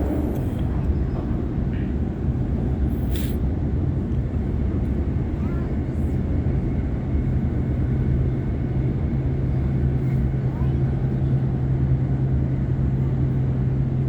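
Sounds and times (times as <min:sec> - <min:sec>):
constant low hum: 0:00.0 - 0:14.0
train wheels rumbling on track: 0:00.0 - 0:14.0
brief hiss: 0:02.9 - 0:03.4.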